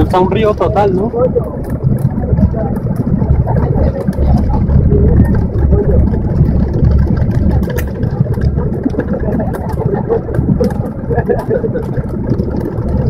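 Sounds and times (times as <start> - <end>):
heavy rain: 0.0 - 13.0
vehicle engine rumble: 0.0 - 13.0.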